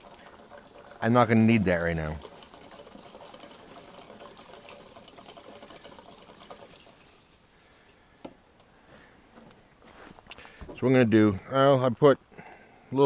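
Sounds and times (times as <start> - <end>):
liquid pouring into a tank: 0.0 - 7.9.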